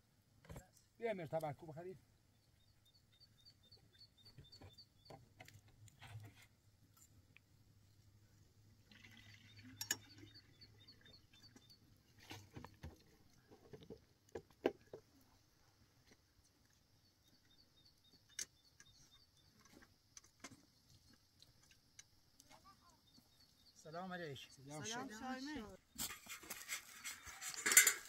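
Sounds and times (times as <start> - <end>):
bird singing high repeated notes: 9.2 - 11.8.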